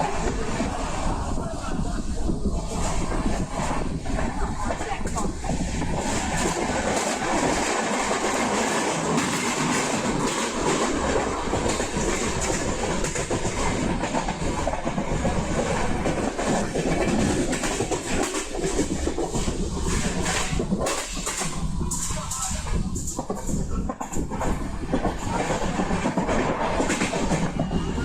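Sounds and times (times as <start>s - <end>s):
train clattering: 0.0s - 28.0s
train wheels rumbling on rail: 0.0s - 28.0s.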